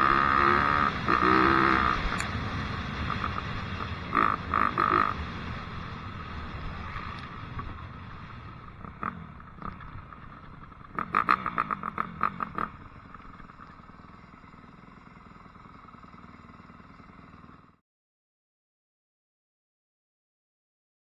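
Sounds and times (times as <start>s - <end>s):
dirt bike engine droning: 0.0s - 17.8s.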